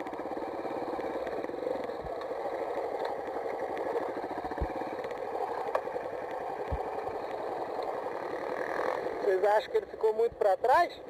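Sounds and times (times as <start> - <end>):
motocross bike engine idling: 0.0 - 10.4.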